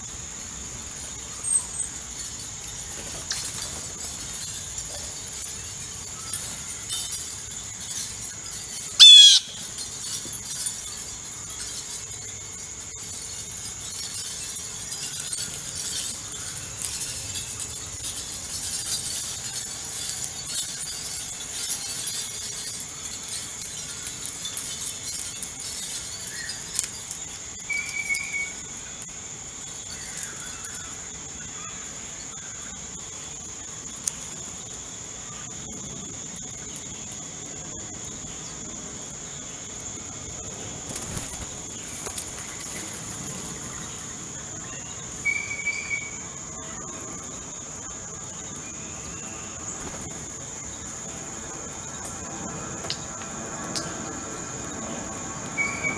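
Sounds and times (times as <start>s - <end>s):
small birds chirping: 0.0s - 52.3s, 52.9s - 55.9s
crickets trilling: 0.0s - 55.9s.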